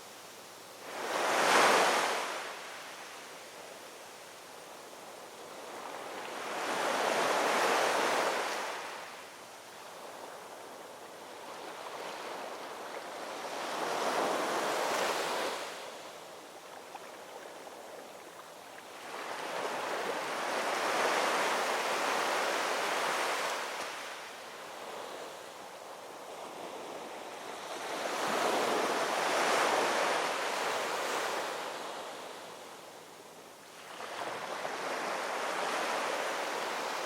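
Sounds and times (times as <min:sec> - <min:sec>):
ocean waves washing on shore: 0:00.0 - 0:37.0.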